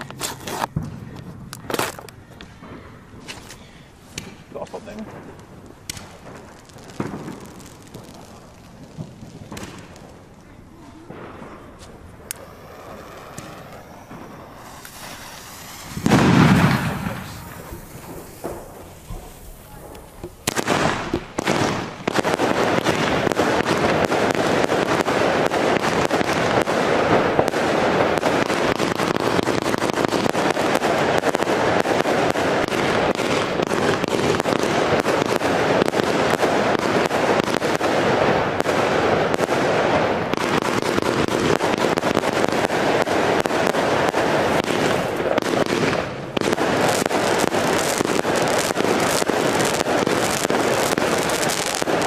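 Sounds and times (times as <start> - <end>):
fireworks barrage: 0.0 - 52.0.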